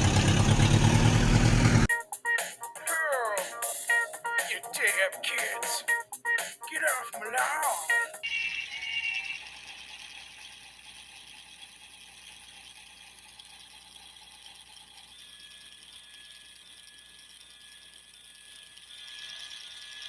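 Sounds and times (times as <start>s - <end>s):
toy motor and gears whirring: 8.3s - 20.0s.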